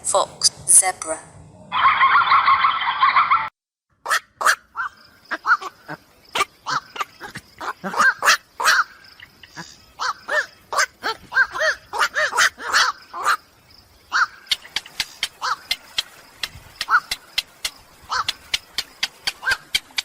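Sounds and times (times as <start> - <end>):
animal squeaky calls: 4.1 - 13.4, 16.8 - 17.3, 18.0 - 19.8
sharp clicks: 14.5 - 20.0.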